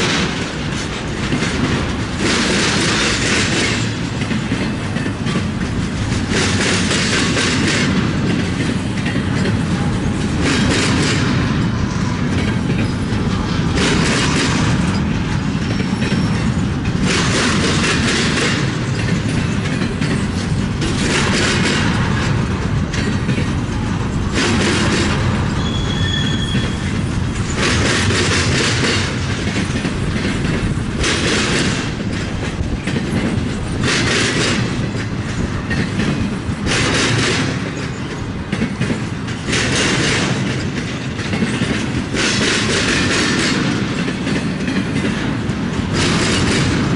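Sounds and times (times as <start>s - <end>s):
freight train cars rumbling: 0.0s - 46.9s
wheels clattering over track: 0.0s - 46.9s.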